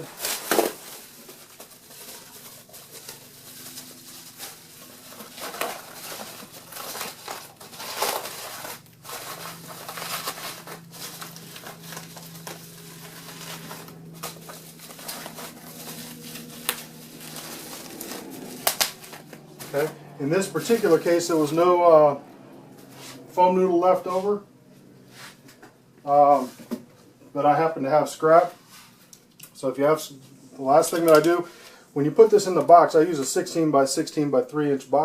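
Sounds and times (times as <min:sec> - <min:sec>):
bubble wrap rustling: 0:00.0 - 0:22.0.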